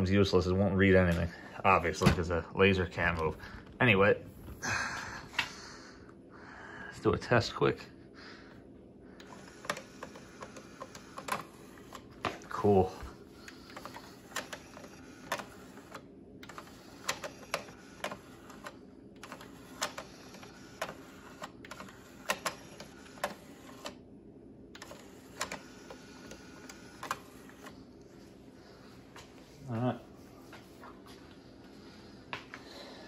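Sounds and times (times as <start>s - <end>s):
faint steady hum: 0.0s - 33.0s
cd changer mechanism clicking: 9.2s - 12.8s, 13.4s - 24.0s, 24.7s - 27.8s.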